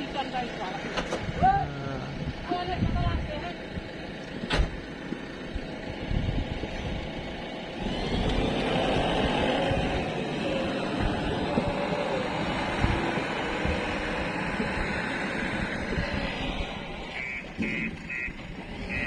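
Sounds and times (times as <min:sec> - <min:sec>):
heavy diesel machinery running: 0:00.0 - 0:19.0.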